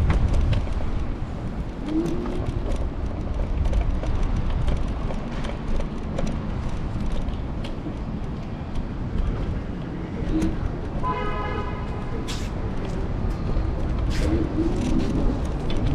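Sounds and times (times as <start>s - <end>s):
rattles and clicks: 0.0s - 11.0s
street traffic: 0.0s - 15.9s
wind and road noise: 0.0s - 15.9s.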